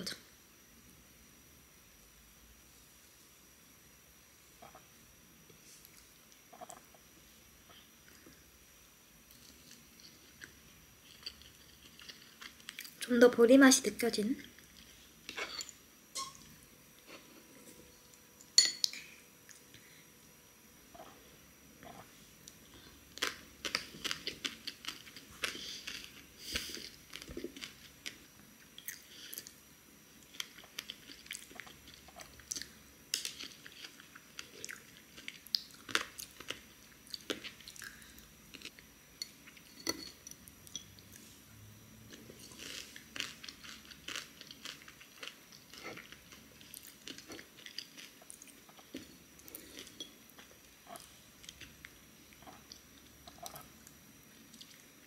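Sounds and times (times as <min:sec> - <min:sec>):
crunchy chewing: 0:09.3 - 0:13.0, 0:21.8 - 0:29.6, 0:30.2 - 0:41.3, 0:42.1 - 0:55.0.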